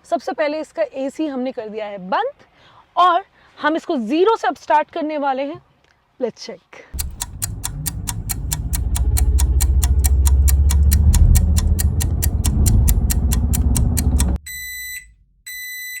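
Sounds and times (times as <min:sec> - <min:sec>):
stopwatch ticking: 0:07.0 - 0:14.4
deep steady rumble: 0:07.0 - 0:15.6
short electronic beeps: 0:14.0 - 0:16.0.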